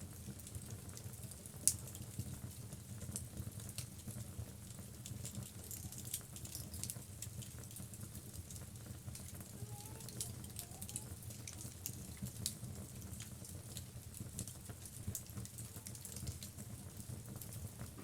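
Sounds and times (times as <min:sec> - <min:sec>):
logs crackling and popping: 0:10.0 - 0:18.0.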